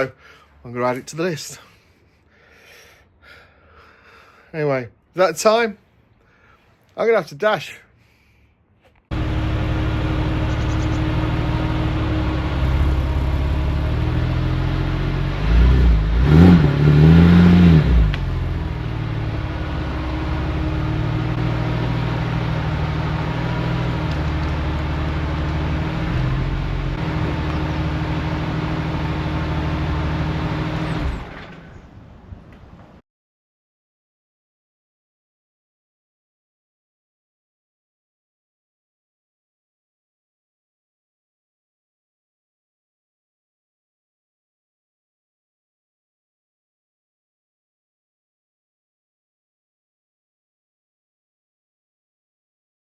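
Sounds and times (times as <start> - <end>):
car engine running and revving: 9.1 - 31.5.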